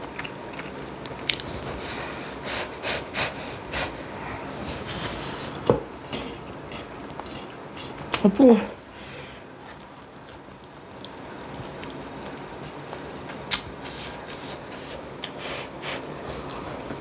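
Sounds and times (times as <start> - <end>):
person sniffing and breathing: 1.7 - 5.6, 13.8 - 16.5.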